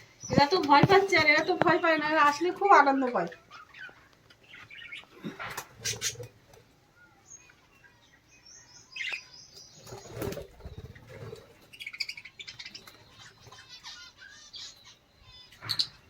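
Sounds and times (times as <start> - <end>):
birds fluttering wings: 9.8 - 11.9.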